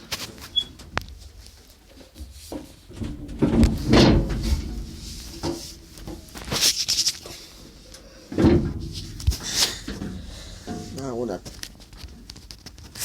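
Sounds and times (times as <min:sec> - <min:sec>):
scraping rustle: 0:00.0 - 0:13.0
heavy thump: 0:02.2 - 0:11.9.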